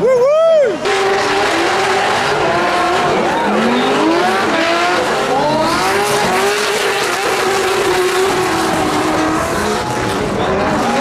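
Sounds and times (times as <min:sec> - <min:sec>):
car engines at high revs: 0:00.8 - 0:11.0.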